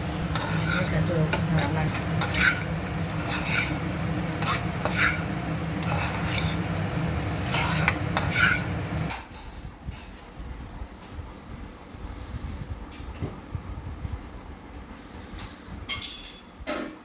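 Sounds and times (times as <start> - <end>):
spatula scraping frying pan: 0.0 - 9.1
low sizzle: 0.0 - 10.1.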